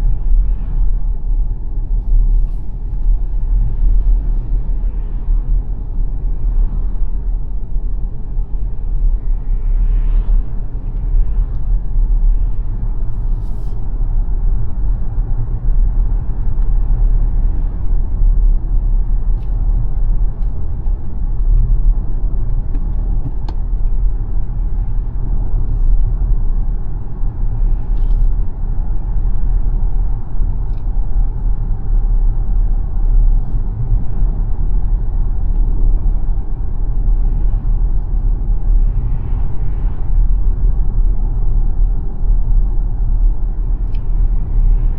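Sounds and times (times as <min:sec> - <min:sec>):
road and tyre rumble: 0:00.0 - 0:44.9.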